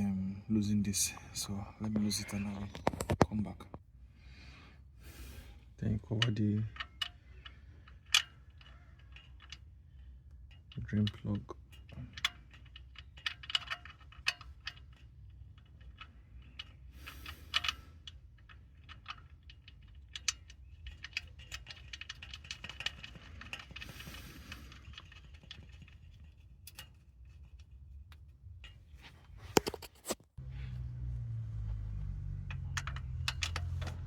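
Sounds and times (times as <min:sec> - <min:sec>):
hand tools and metal parts clinking: 0:06.1 - 0:34.0.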